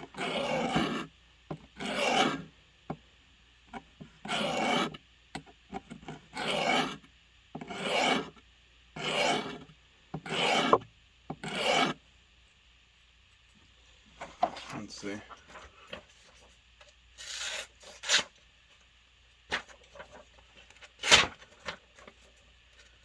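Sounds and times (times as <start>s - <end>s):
blade sharpening rasping strokes: 1.8s - 2.4s, 6.4s - 7.0s, 7.7s - 8.3s, 9.0s - 9.6s, 10.3s - 10.8s, 11.5s - 12.0s.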